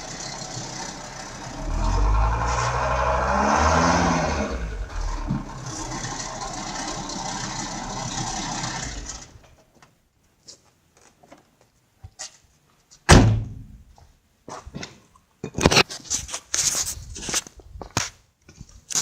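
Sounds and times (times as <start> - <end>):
diesel engine running: 0.0 - 9.4
door slamming: 13.1 - 13.7.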